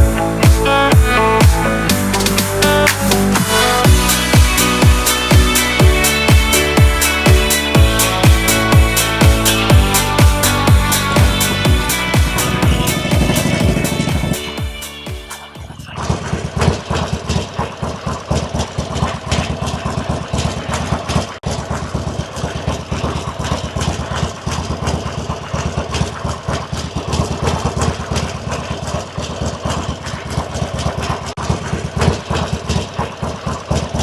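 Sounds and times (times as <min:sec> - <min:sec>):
motorcycle engine idling: 0:00.0 - 0:15.9.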